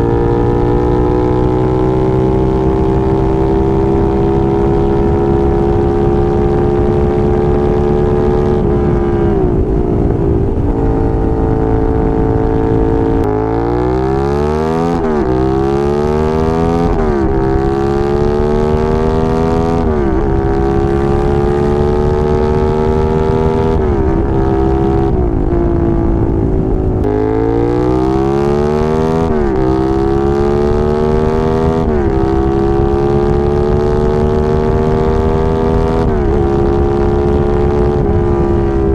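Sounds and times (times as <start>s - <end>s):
motorcycle engine accelerating: 0.0s - 38.9s
wind rushing: 4.4s - 14.2s.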